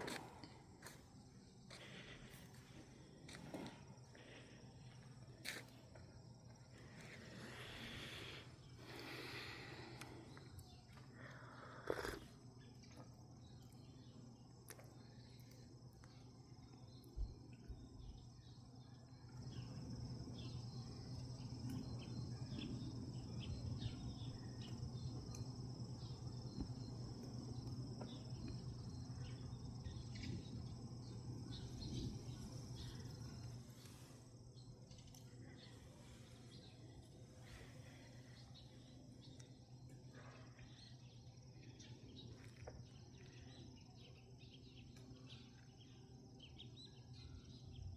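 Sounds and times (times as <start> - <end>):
insects chirring: 0.0 - 47.9
low steady hum: 0.0 - 47.9
small ticks: 9.9 - 18.6, 21.2 - 22.8, 23.8 - 30.8, 34.6 - 35.8.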